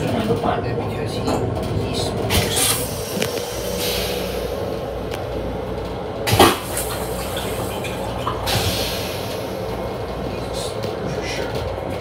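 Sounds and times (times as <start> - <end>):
railcar rumble: 0.0 - 12.0.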